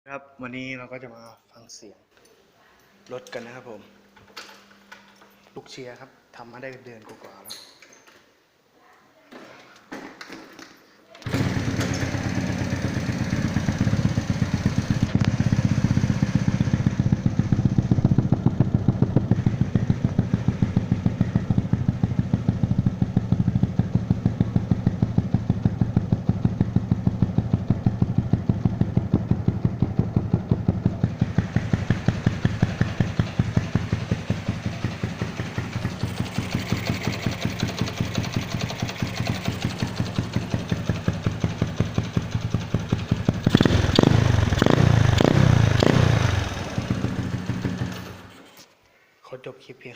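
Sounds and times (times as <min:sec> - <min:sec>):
motorcycle engine idling: 0:11.2 - 0:48.3.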